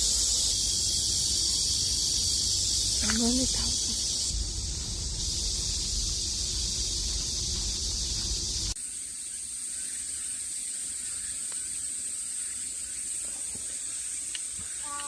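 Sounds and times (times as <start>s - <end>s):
insect chorus: 0.0s - 15.0s
wind rumbling on microphone: 2.8s - 8.7s.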